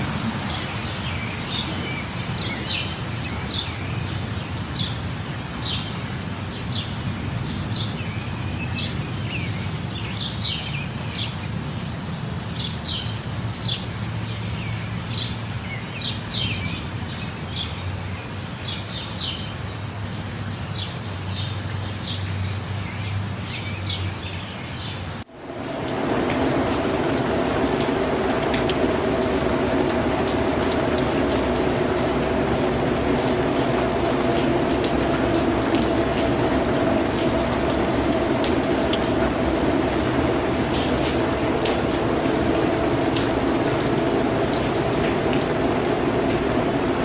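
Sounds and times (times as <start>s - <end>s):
steady background hiss: 25.2s - 47.0s.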